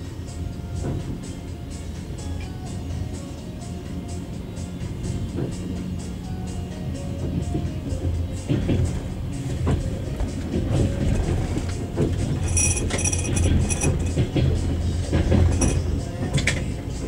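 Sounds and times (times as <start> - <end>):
train wheels rumbling on track: 0.0 - 17.0
high-pitched metallic sounds: 11.0 - 14.7, 15.3 - 16.1.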